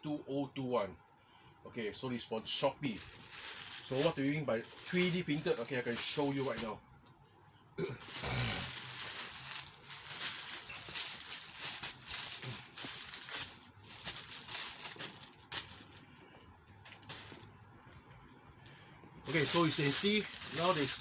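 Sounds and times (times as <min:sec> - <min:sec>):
plastic packaging rustling: 0:02.8 - 0:06.8, 0:08.0 - 0:17.5, 0:19.2 - 0:21.0.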